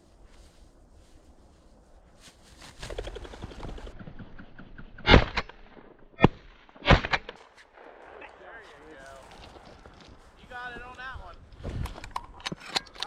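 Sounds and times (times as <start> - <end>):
bird wings rustling flurry: 0.0 - 4.7
shotgun shots: 5.0 - 9.6.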